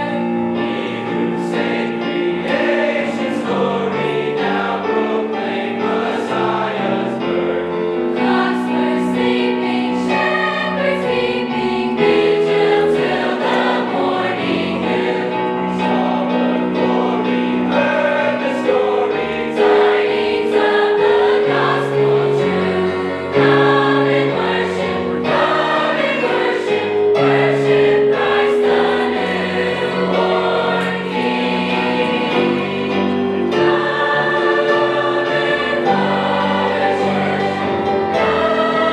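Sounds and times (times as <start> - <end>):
choir singing in parts: 0.0 - 38.9.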